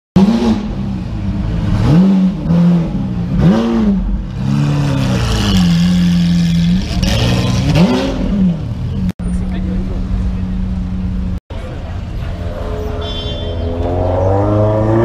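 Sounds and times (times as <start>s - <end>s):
sports car engine revving: 0.2s - 9.0s.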